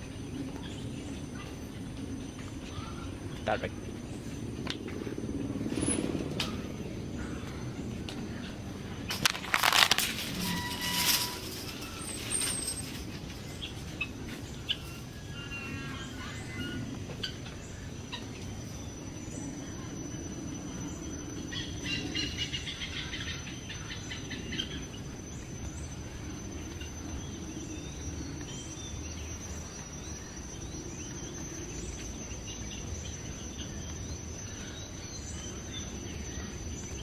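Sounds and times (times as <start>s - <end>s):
high-pitched insect drone: 18.3s - 36.8s.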